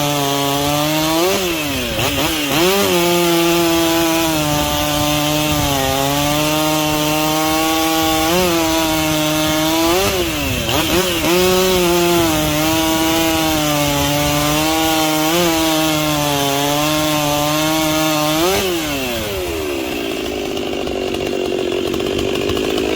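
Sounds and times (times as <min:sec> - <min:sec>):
chainsaw cutting wood: 0:00.0 - 0:22.9.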